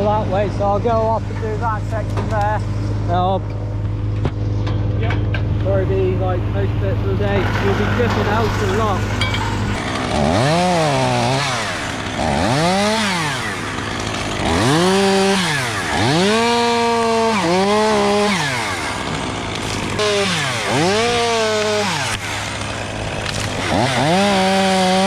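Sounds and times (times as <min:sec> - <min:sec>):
steady low hum: 0:00.0 - 0:10.1
chainsaw cutting in throttle bursts: 0:08.6 - 0:25.0.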